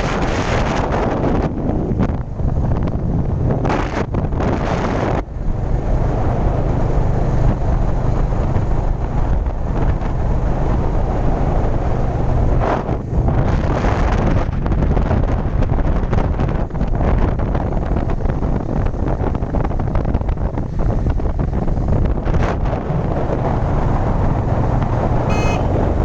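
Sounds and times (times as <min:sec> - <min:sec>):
wind buffeting microphone: 0:00.0 - 0:26.0
motorcycle engine running: 0:23.9 - 0:26.0.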